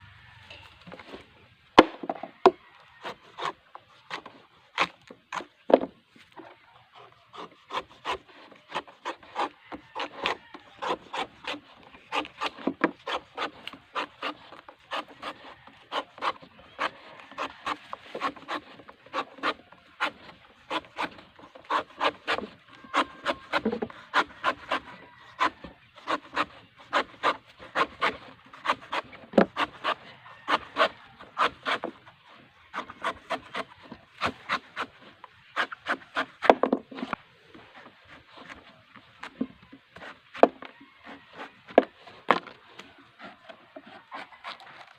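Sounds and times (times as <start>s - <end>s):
blade chopping coconut husk: 7.3s - 39.4s.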